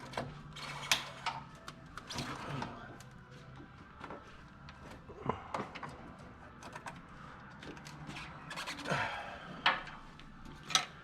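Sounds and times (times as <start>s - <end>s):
hand tools clicking and scraping: 0.0s - 3.1s, 6.6s - 11.0s.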